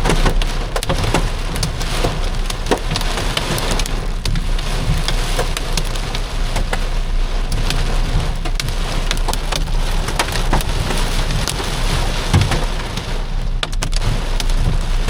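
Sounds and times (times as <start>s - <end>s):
heavy rain on car roof: 0.0s - 15.0s
low steady rumble: 0.0s - 15.0s.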